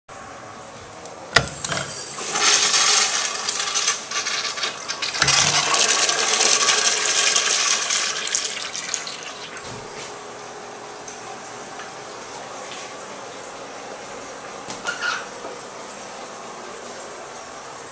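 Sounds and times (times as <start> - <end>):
toilet flushing water: 1.4 - 10.1.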